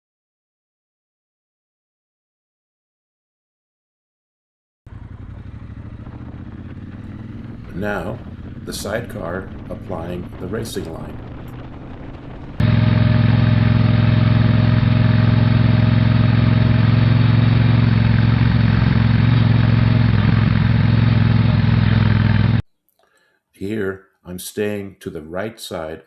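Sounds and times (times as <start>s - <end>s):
motorcycle engine running: 4.9s - 22.6s.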